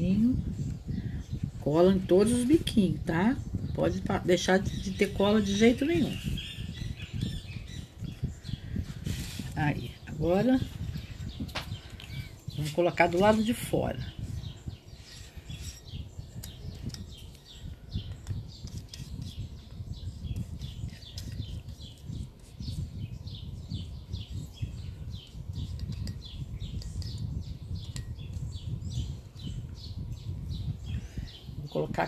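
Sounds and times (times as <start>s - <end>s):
bird chirping: 0.0s - 32.0s.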